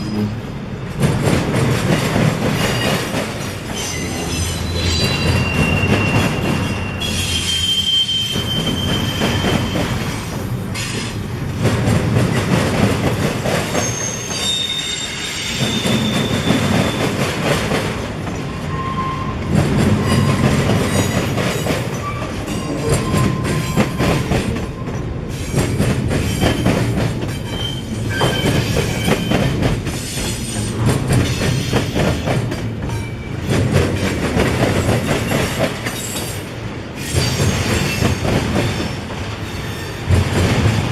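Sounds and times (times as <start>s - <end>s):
train wheels clattering over rails: 0.8s - 18.6s, 19.4s - 40.9s
high wheel squeals: 3.7s - 10.2s, 13.7s - 17.0s, 18.5s - 20.5s.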